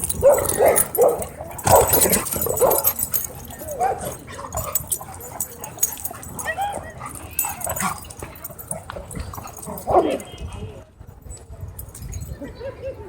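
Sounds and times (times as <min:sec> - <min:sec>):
dogs barking and whining: 0:00.0 - 0:10.3.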